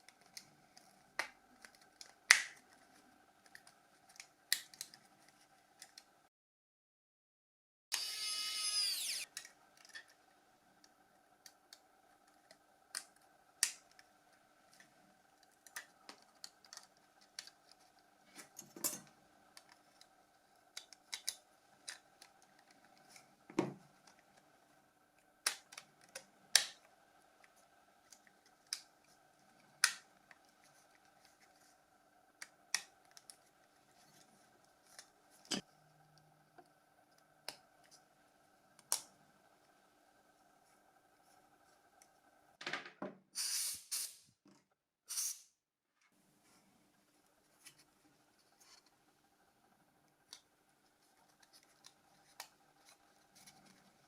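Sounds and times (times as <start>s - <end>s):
faint steady hum: 7.9s - 42.6s, 46.0s - 54.0s.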